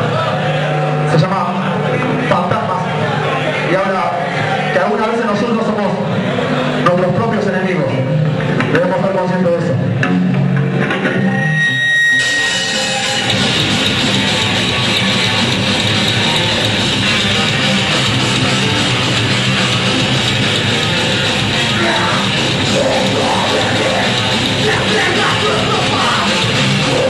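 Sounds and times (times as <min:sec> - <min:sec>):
live rock band playing: 0:09.9 - 0:27.0
person yelling vocals: 0:24.6 - 0:27.0.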